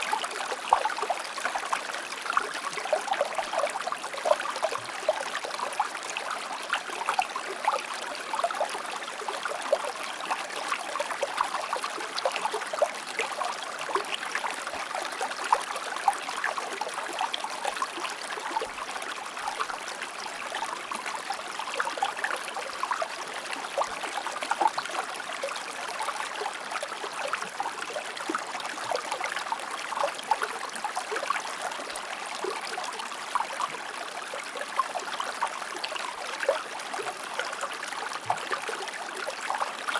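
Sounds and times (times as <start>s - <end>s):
small water splashes and trickles: 0.0s - 39.9s
stream flowing over rocks: 0.0s - 39.9s.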